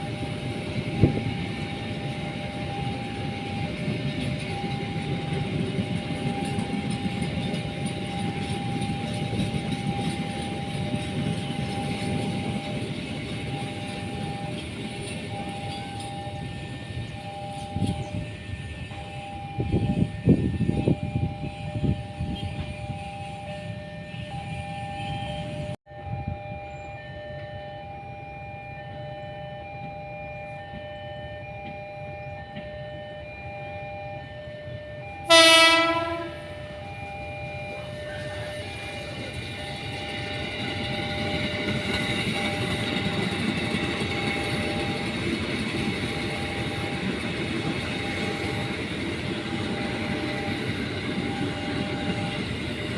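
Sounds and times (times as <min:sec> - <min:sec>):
level crossing warning tones: 0:00.0 - 0:52.9
train rumble and wheel noise: 0:00.0 - 0:52.9
train horn blast: 0:19.2 - 0:25.8, 0:35.1 - 0:36.9.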